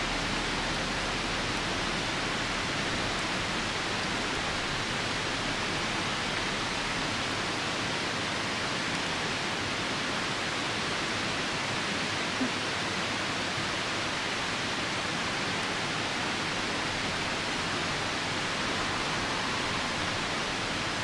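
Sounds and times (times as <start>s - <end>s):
falling rain: 0.0s - 21.0s
river rushing: 0.0s - 21.0s.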